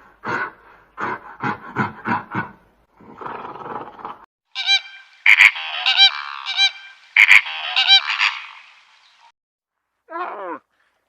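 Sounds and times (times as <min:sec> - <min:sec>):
birds honking: 0:04.6 - 0:09.3.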